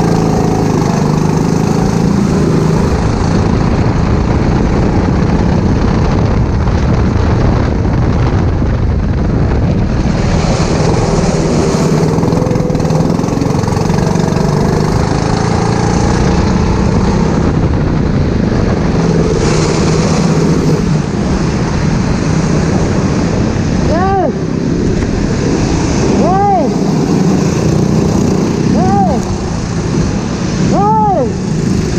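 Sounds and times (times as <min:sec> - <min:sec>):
go-kart engine revving: 0:00.0 - 0:03.7, 0:10.1 - 0:17.9, 0:25.7 - 0:31.9
wind rumble on microphone: 0:00.0 - 0:31.9.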